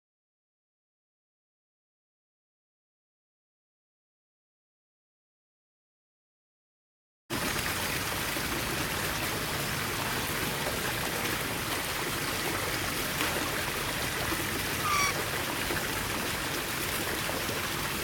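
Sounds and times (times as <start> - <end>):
rushing water: 7.3 - 18.0
short bird call: 14.7 - 15.3.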